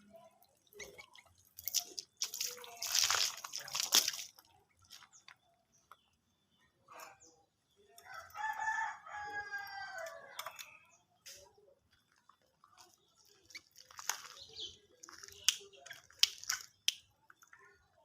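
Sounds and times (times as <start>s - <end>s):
bird splashing water: 0.0s - 5.2s, 13.2s - 17.1s
rooster crowing: 8.1s - 10.3s.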